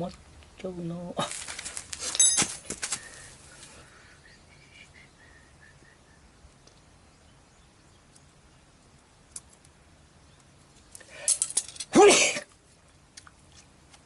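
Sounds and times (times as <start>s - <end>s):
sharp metallic clink: 2.1s - 2.5s.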